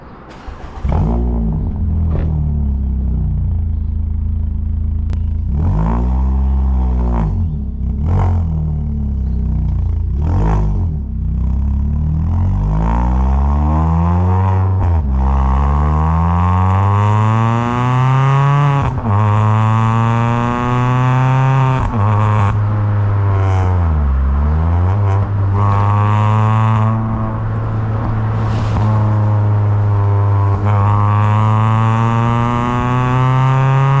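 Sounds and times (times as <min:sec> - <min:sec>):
engine throttle blips: 0:00.0 - 0:11.9
car engine accelerating: 0:00.0 - 0:34.0.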